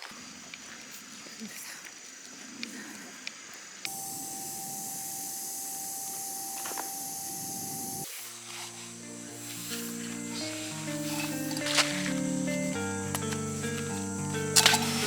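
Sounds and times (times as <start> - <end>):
steady hiss with held tone: 0.0 - 15.0
gentle background music: 8.1 - 15.0.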